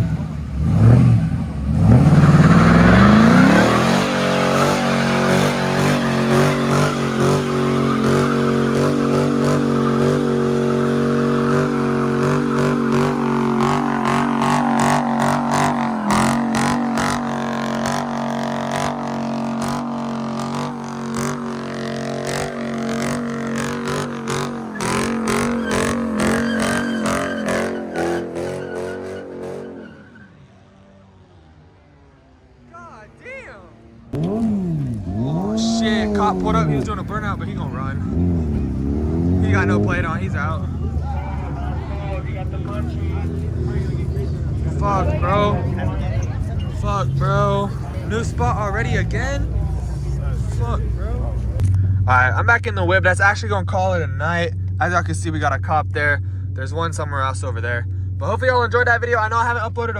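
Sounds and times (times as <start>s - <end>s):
car engine revving: 0.0s - 32.7s, 33.6s - 59.9s
tyres squealing: 1.9s - 30.5s.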